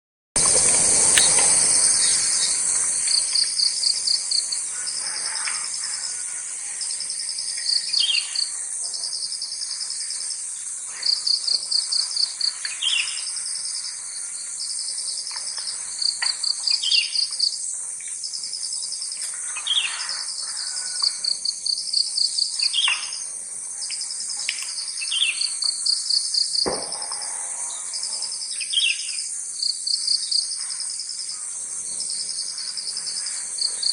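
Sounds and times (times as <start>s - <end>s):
constant high hiss: 0.4s - 33.9s
crickets and insects chorus: 0.4s - 33.9s
pulsed cricket trills: 0.4s - 33.9s
low thud: 26.6s - 27.2s.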